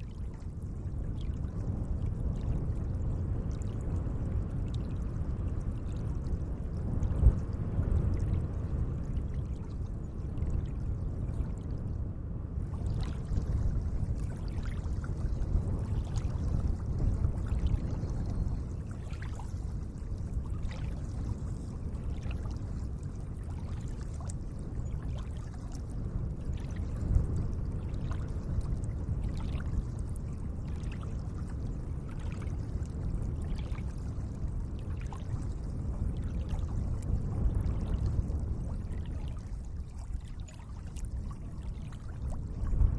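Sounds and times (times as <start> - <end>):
small water drips and splashes: 0.0 - 12.0, 12.6 - 42.9
lake water washing: 12.7 - 37.1, 37.7 - 42.7.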